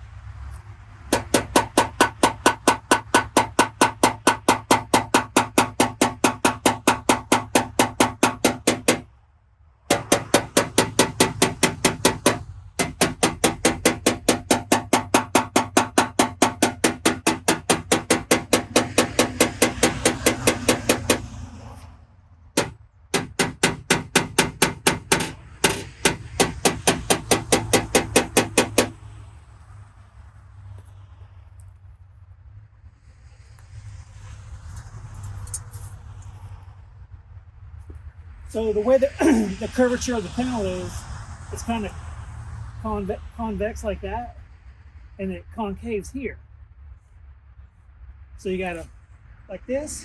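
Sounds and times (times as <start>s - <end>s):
hammer tapping on sheet metal: 1.1s - 9.1s, 9.9s - 21.3s, 22.6s - 29.0s.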